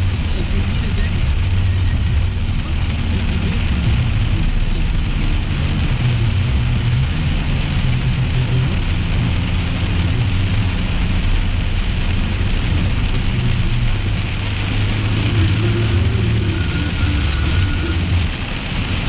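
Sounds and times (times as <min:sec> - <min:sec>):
engine and tyres rumbling: 0:00.0 - 0:19.0
heavy rain drumming on car: 0:00.0 - 0:19.0.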